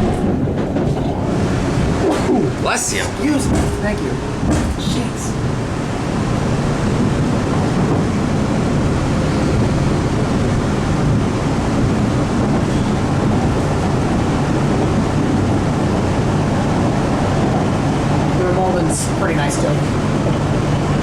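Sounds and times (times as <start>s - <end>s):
subway car wheels on rail: 0.0s - 21.0s.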